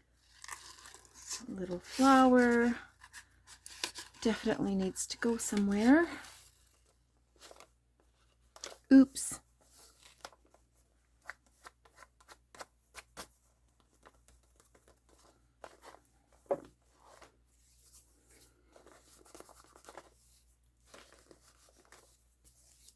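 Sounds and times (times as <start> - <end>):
paper rustling and rubbing: 16.8 - 22.9.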